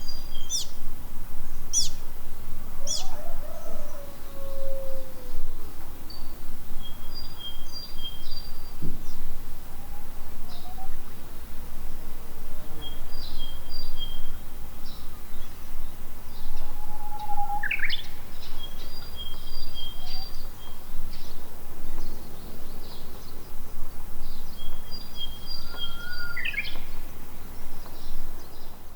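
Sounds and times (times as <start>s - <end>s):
low background noise: 0.0s - 28.9s
bird rising call: 16.4s - 18.2s, 25.6s - 26.8s.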